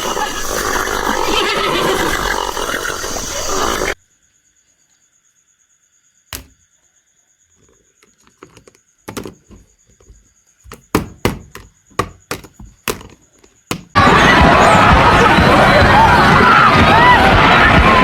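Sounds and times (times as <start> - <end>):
sharp knocks and taps: 8.3 - 14.0.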